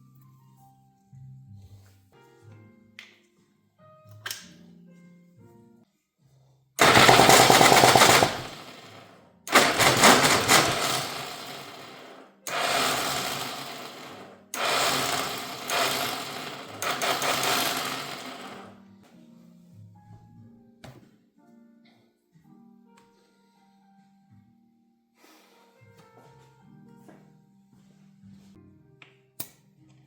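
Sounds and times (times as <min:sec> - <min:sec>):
two-stroke engine bursts: 0:06.8 - 0:18.7.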